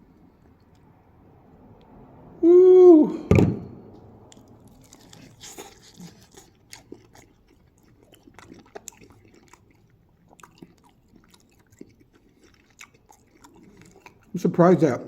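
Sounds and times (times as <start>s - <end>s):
chewing crispy food: 4.3s - 15.0s.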